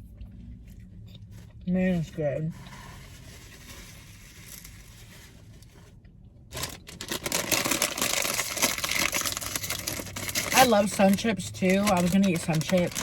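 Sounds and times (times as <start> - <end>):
faint background hum: 0.0 - 13.0
food packaging crinkling: 2.7 - 13.0.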